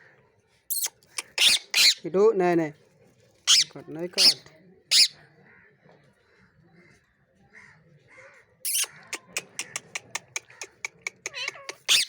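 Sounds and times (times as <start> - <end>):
parrot screeching and squawking: 0.7 - 2.0, 3.5 - 5.2, 8.7 - 9.0, 10.0 - 12.0.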